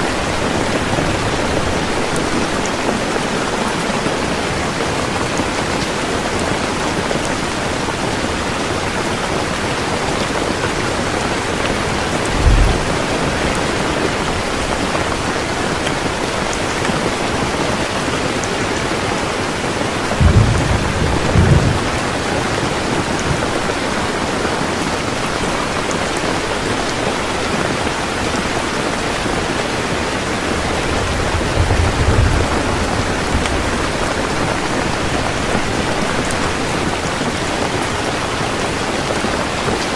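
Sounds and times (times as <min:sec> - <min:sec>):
heavy rain falling: 0:00.0 - 0:39.9
low thunder rumbles: 0:10.8 - 0:15.4, 0:20.1 - 0:24.0, 0:30.5 - 0:36.0.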